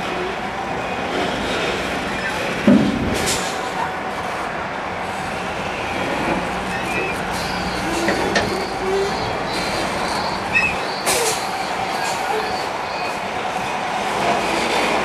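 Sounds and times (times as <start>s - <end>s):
heavy vehicles rumbling past: 0.0s - 15.0s
short high squeals: 6.7s - 13.2s.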